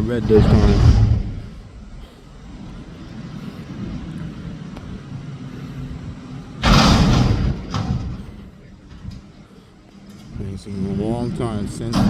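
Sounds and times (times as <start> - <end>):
sudden loud rushing noise: 0.0 - 5.3, 6.0 - 9.2
diesel truck engine rumbling: 0.0 - 12.0.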